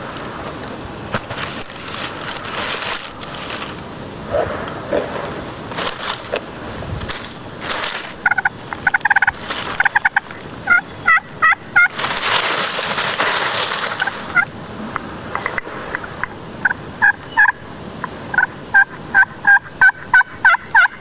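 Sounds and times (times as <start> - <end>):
turkey gobbling: 8.1 - 12.0, 13.9 - 14.5, 15.3 - 17.6, 18.3 - 21.0.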